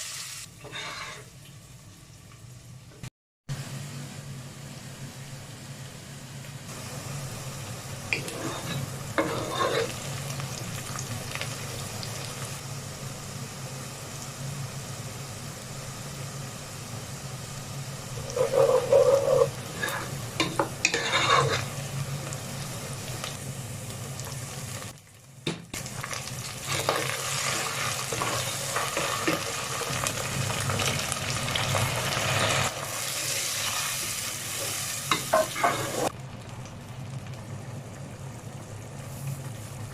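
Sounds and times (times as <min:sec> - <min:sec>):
vegetables sizzling in a pan: 0:00.0 - 0:03.0, 0:03.6 - 0:39.9
spatula scraping a pan: 0:00.6 - 0:01.3, 0:08.2 - 0:10.0, 0:18.2 - 0:21.8, 0:26.6 - 0:29.4, 0:35.1 - 0:36.1.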